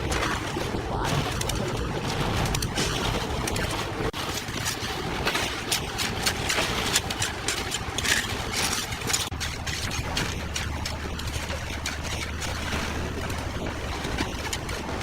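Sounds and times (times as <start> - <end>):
low steady hum: 0.0 - 15.0
scraping and clattering: 2.4 - 10.4.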